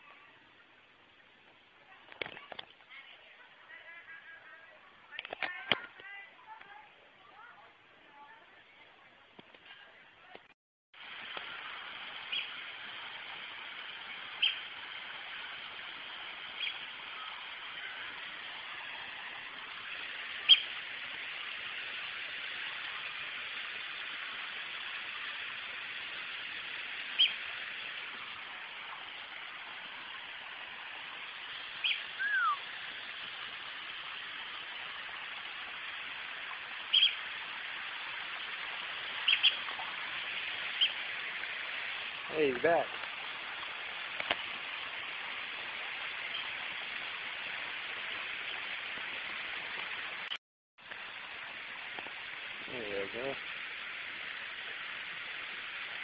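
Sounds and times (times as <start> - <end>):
background hiss: 11.0 - 56.0
birds chirping: 11.5 - 12.6, 14.0 - 14.7, 16.5 - 19.0, 19.6 - 20.8, 27.1 - 29.2, 31.7 - 33.3, 36.8 - 37.3, 38.4 - 41.1, 46.2 - 46.6
bird downward-sliding whistle: 31.8 - 32.7.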